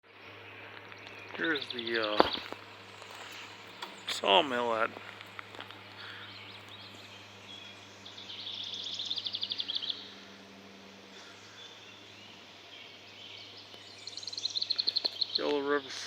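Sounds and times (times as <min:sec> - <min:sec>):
faint low hum: 0:00.1 - 0:16.0
bird trilling: 0:05.6 - 0:10.4, 0:11.2 - 0:15.6.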